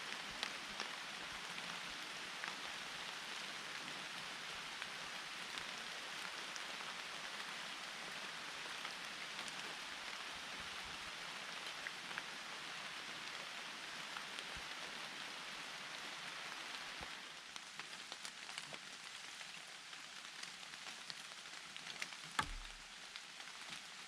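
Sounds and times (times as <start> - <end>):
rain falling in forest: 0.0 - 24.0.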